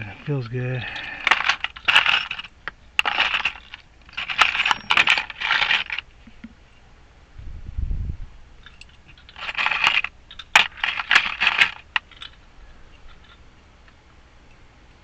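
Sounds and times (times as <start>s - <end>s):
metal keys jingling: 0.8s - 6.0s, 8.6s - 12.4s.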